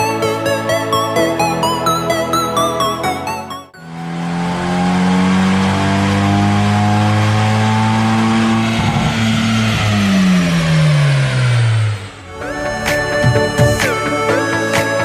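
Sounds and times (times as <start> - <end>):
diesel engine revving: 3.9 - 14.8.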